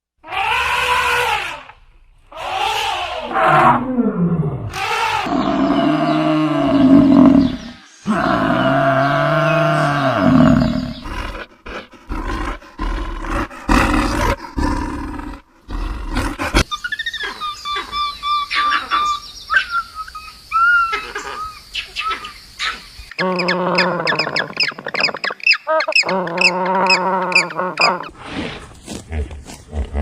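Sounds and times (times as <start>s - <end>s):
deep animal call: 2.3s - 19.1s, 23.2s - 30.0s.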